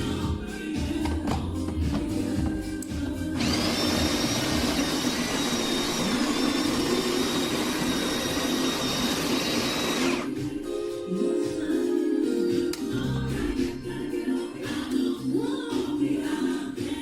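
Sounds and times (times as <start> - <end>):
espresso machine hissing: 3.4 - 10.3.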